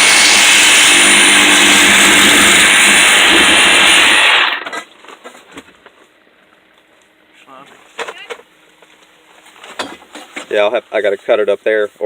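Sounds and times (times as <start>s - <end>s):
power tool motor whining: 0.0s - 4.8s.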